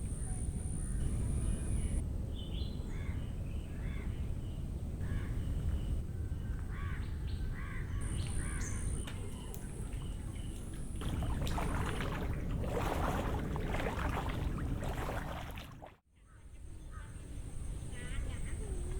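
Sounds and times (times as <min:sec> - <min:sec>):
bird calling: 0:06.7 - 0:15.4.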